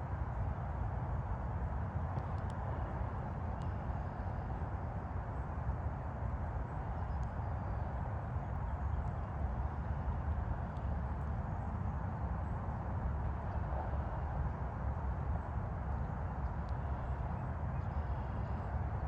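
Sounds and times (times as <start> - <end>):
distant highway traffic roar: 0.0 - 19.0
faint high ticks: 2.1 - 2.6.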